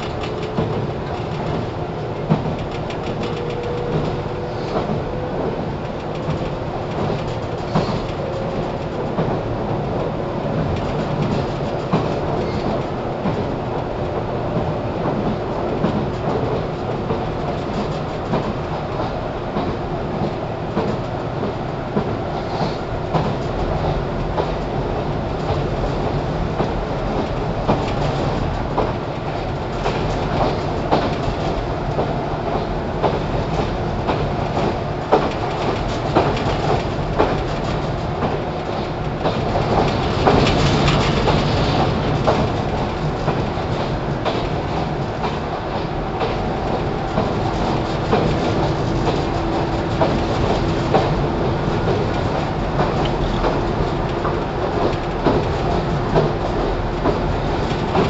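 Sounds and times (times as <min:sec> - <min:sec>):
wheels clicking over rail joints: 0:00.0 - 0:09.4, 0:25.2 - 0:58.0
train rumble and motor hum: 0:00.0 - 0:58.0.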